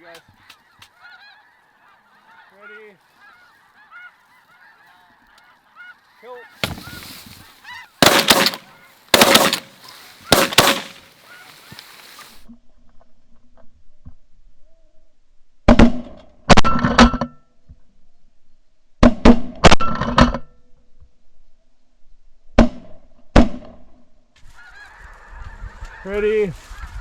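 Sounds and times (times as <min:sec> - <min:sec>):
snow geese honking: 0:00.4 - 0:12.4, 0:24.5 - 0:27.0
shotgun fire: 0:06.6 - 0:07.0, 0:08.0 - 0:11.4.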